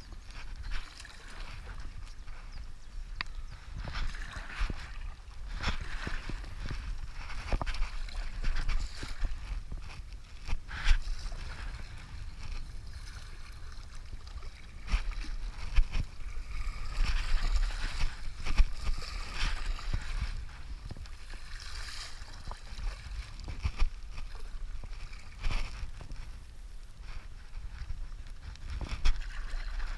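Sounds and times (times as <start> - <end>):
river water splashing: 21.2 - 23.6.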